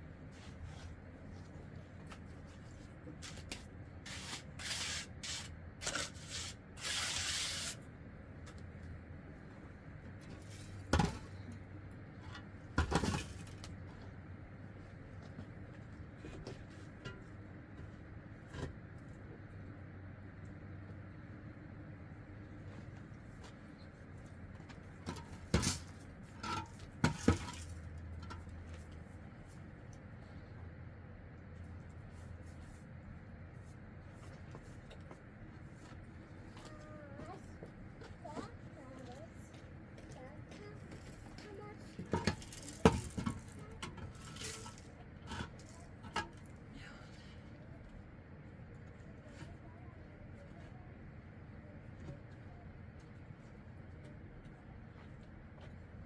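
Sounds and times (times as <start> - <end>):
low steady hum: 0.0 - 56.0
rubbing or scraping strokes: 4.1 - 7.8.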